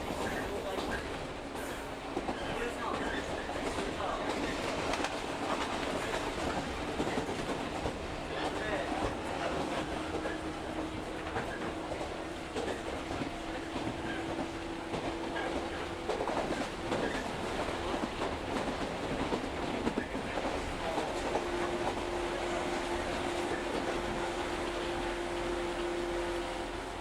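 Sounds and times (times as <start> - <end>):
train rolling noise: 0.0 - 27.0
train motor hum: 20.2 - 27.0.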